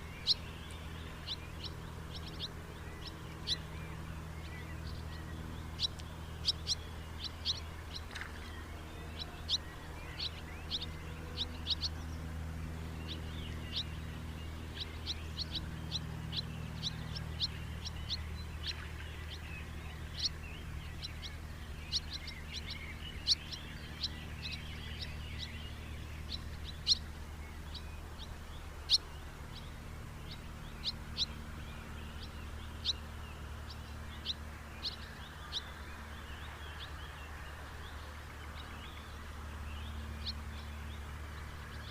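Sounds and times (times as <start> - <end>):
birds chirping: 0.0 - 41.9
steady low hum: 0.0 - 41.9.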